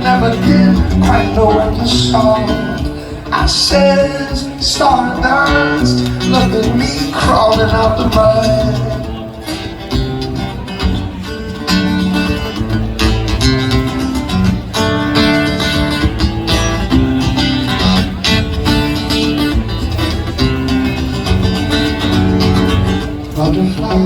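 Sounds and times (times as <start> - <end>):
person singing: 0.0 - 9.7, 23.3 - 24.0
acoustic guitars playing: 0.0 - 24.0.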